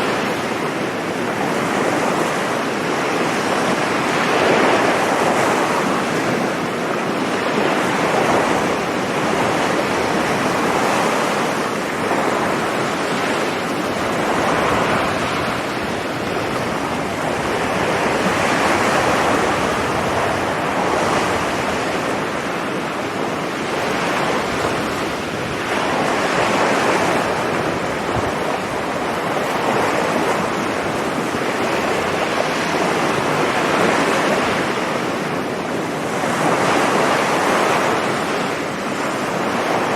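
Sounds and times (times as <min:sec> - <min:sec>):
sea surf breaking on beach: 0:00.0 - 0:39.9
wind on microphone: 0:00.0 - 0:39.9.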